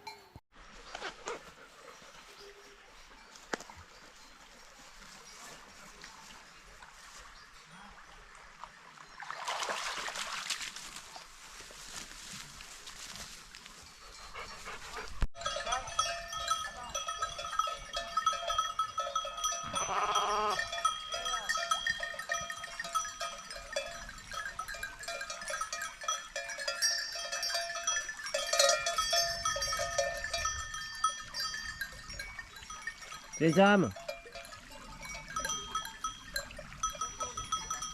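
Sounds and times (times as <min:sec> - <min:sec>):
livestock bells clanking: 0:13.8 - 0:37.9
sheep bleat: 0:19.6 - 0:20.7.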